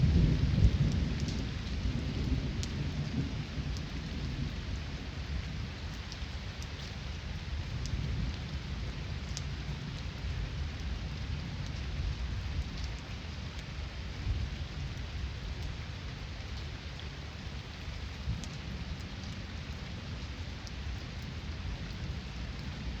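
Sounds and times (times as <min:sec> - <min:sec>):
heavy rain falling: 0:00.0 - 0:23.0
raindrops ticking: 0:00.2 - 0:04.8, 0:05.8 - 0:10.1, 0:14.5 - 0:19.8.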